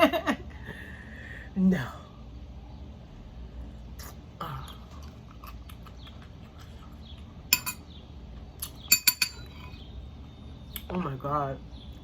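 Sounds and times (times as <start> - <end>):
cutlery clinking against dishes: 7.5 - 7.9, 8.8 - 9.8.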